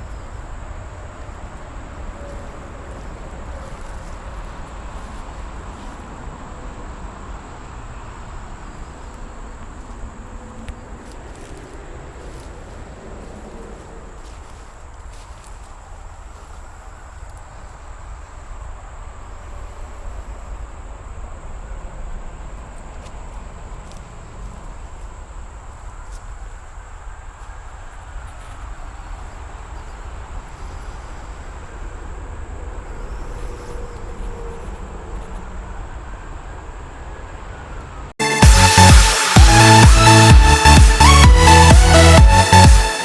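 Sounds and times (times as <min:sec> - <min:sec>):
electronic dance music: 0:38.2 - 0:43.0.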